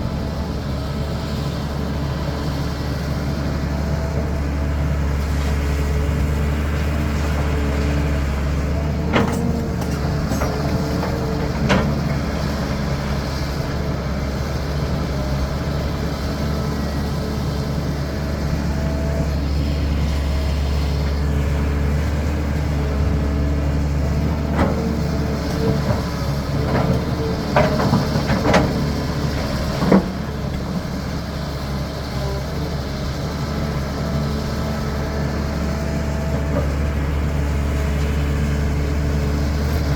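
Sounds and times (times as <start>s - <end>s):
excavator diesel engine running: 0.0s - 39.9s
digging knocks and clanks: 6.8s - 13.2s, 24.1s - 30.7s.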